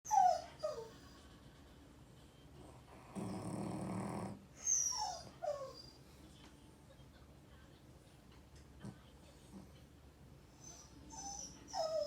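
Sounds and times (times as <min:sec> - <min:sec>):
dog whining: 0:00.1 - 0:00.9, 0:03.2 - 0:06.0, 0:10.6 - 0:12.0
dog snoring: 0:02.6 - 0:05.1.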